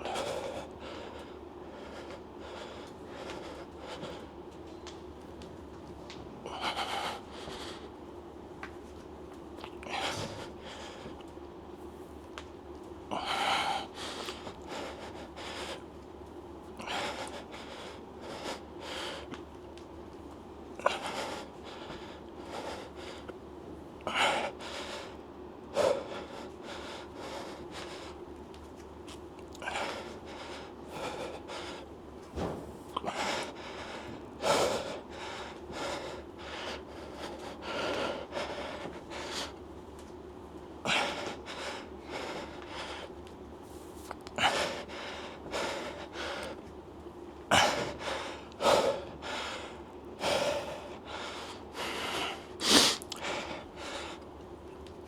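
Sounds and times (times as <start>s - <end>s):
man breathing hard: 0.0s - 4.4s, 6.4s - 8.0s, 9.8s - 11.2s, 13.1s - 15.9s, 16.8s - 19.4s, 20.8s - 23.4s, 24.0s - 28.2s, 29.6s - 32.0s, 33.0s - 39.6s, 40.8s - 43.2s, 44.4s - 46.6s, 47.5s - 54.3s.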